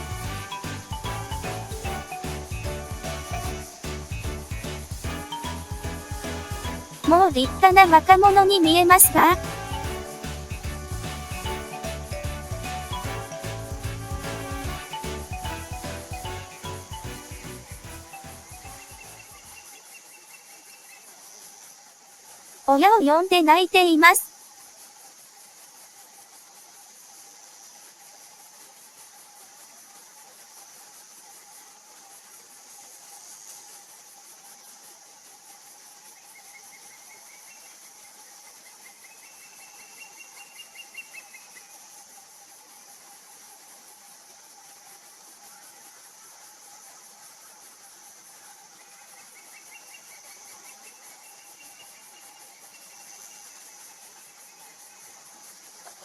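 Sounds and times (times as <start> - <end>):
insect trilling: 0.0 - 56.0.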